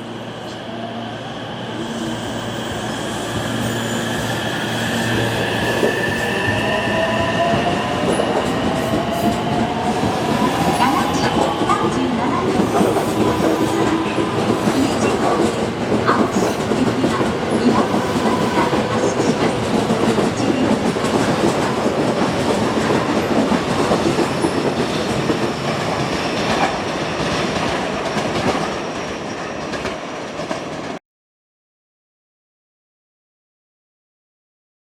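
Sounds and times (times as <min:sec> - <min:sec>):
electric train pulling out: 0:00.0 - 0:27.2.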